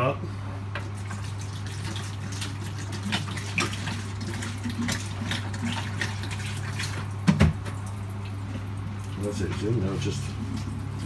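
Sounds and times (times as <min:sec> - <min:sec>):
water splashing: 0:00.9 - 0:11.0
water poured into a pot: 0:01.0 - 0:07.2.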